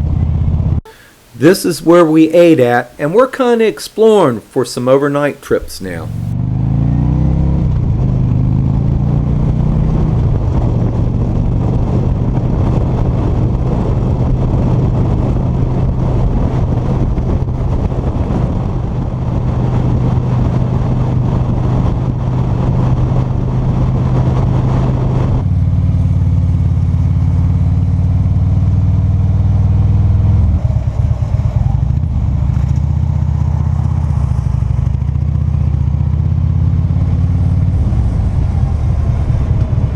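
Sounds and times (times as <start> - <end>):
motorcycle engine running: 0.0 - 1.1, 6.1 - 39.9.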